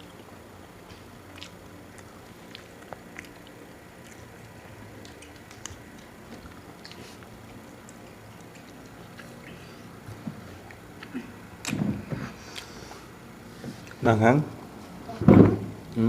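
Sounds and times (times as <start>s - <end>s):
person chewing food: 0.0s - 14.0s
mouth clicks and smacks: 1.3s - 9.6s.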